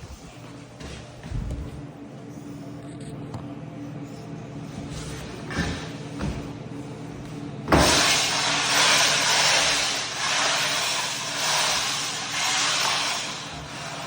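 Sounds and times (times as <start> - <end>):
floor buffer motor hum: 0.0 - 14.0
buffer pad hissing on floor: 7.8 - 14.0.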